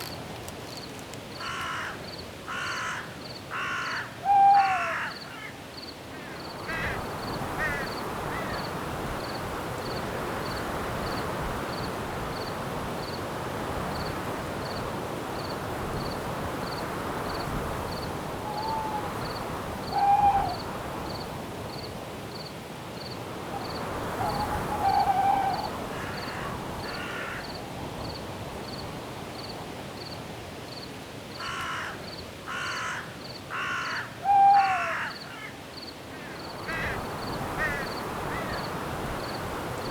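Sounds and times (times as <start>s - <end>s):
cricket chirping: 0.0s - 4.0s, 15.4s - 30.9s
wind in forest branches: 0.0s - 39.9s.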